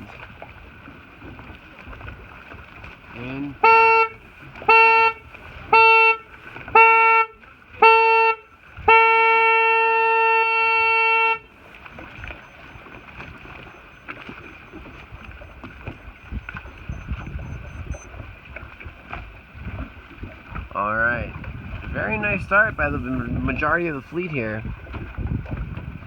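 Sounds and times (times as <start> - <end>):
water noise: 0.0 - 26.0
wind: 0.0 - 26.0
air horn blasts: 3.6 - 13.3.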